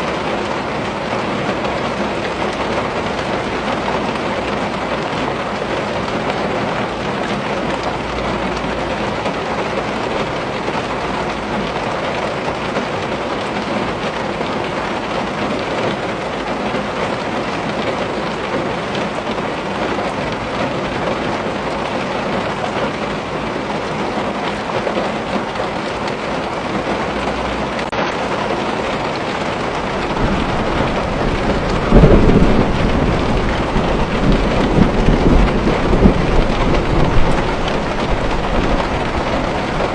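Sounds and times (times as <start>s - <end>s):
rain pattering on a window: 0.0s - 39.9s
low rumble of thunder: 28.1s - 39.9s.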